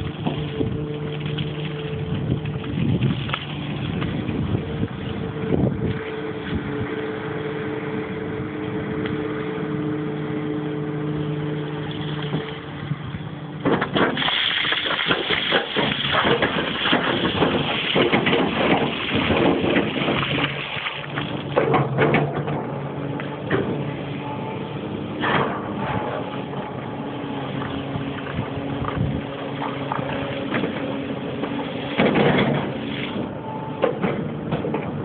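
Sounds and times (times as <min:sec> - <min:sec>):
rock crunching and grinding: 0:00.0 - 0:05.2, 0:13.6 - 0:22.8
excavator diesel engine running: 0:00.0 - 0:35.0.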